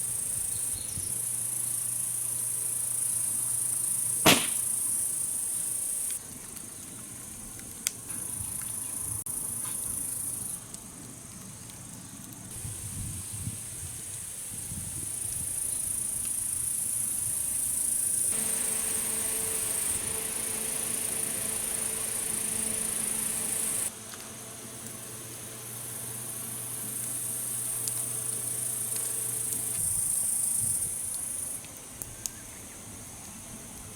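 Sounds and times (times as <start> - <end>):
insects chirring: 0.0 - 7.4, 14.6 - 33.2.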